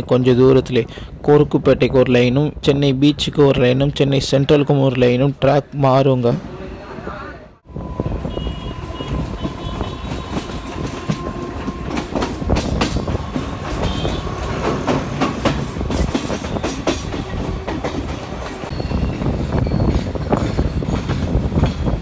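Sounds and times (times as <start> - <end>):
train rumbling: 6.3 - 22.0
wheels clattering over rail joints: 9.1 - 22.0.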